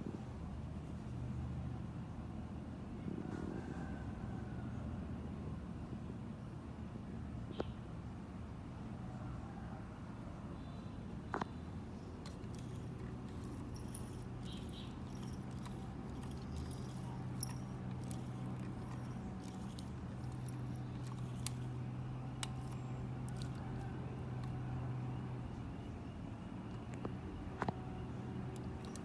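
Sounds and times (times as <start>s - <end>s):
light clicks and rattles: 12.2s - 24.7s, 26.7s - 29.0s
excavator motor humming: 12.2s - 29.0s.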